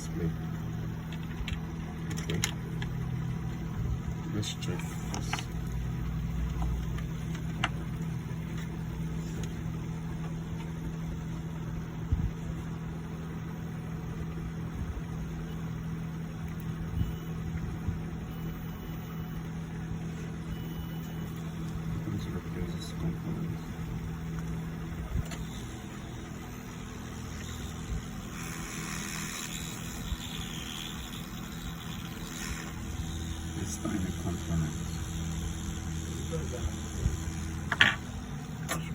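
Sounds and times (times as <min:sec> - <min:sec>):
laptop speaker buzzing hum: 0:00.0 - 0:38.9.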